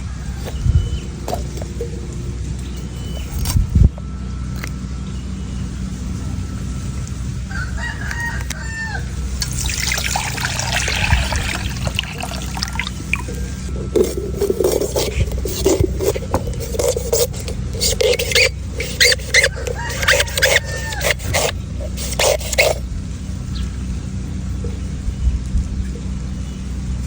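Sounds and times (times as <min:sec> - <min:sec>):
liquid pouring: 0:09.4 - 0:13.5.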